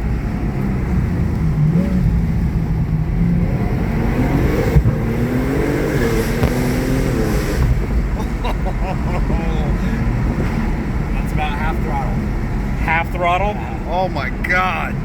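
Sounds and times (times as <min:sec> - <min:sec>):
car engine revving: 0:00.0 - 0:15.0
brief thump: 0:04.7 - 0:05.1, 0:06.4 - 0:06.9.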